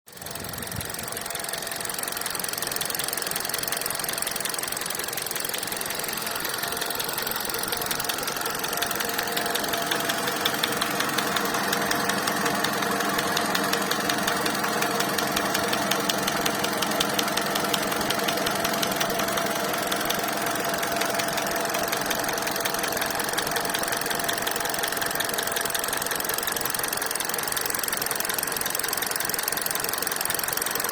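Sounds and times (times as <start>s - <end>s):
rapid knocking inside engine: 0.1s - 30.9s
car engine running: 2.5s - 27.1s.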